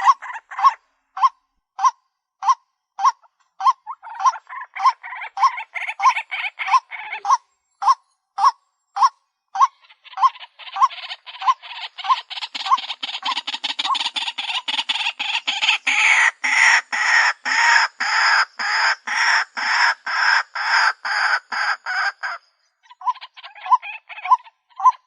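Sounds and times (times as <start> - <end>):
bird croaking calls: 0.0 - 25.0
harsh bird chatter: 3.8 - 7.4, 9.7 - 25.0.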